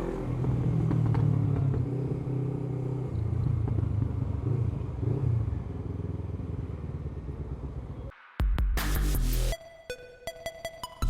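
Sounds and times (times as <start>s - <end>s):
motorcycle engine running: 0.0s - 8.1s.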